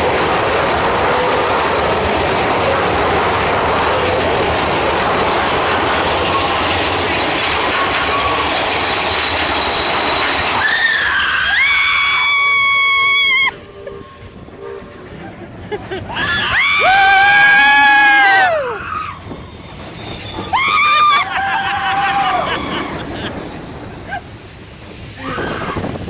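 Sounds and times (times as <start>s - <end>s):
roller coaster wind and track clatter: 0.0s - 26.0s
high held squeal: 6.2s - 14.3s, 16.2s - 21.3s.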